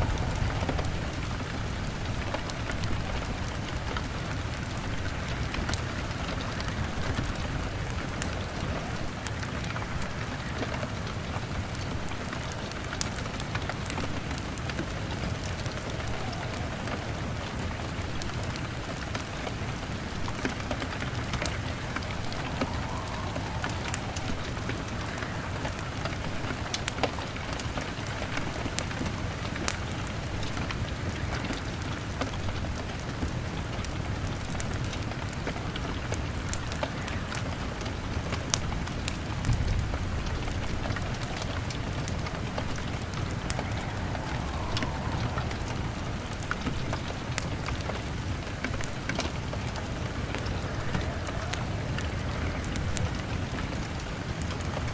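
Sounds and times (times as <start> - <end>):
rain on a window: 0.0 - 54.9
wood fire crackling: 0.0 - 54.9.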